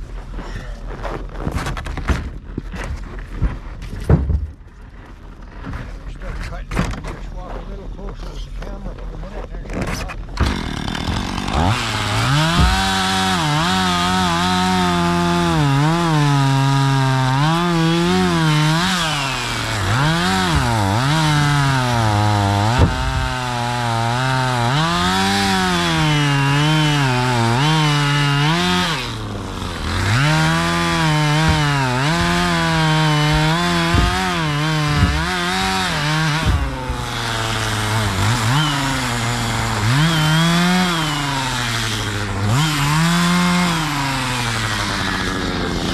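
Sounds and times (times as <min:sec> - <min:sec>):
chainsaw cutting wood: 0:09.7 - 0:45.9.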